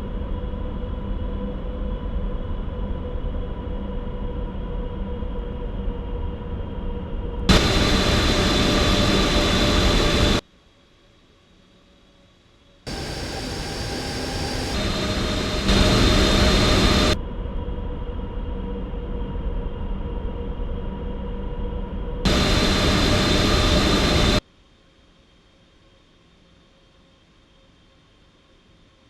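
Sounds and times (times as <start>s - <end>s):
jet engines rumbling and whining: 7.5s - 10.4s, 12.9s - 17.2s, 22.3s - 24.4s.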